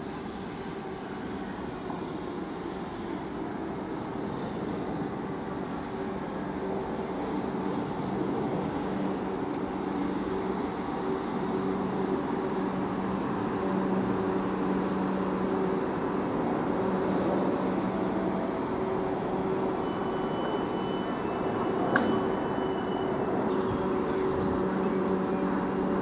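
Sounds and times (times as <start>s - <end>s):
wheel-on-rail noise: 7.2s - 26.0s.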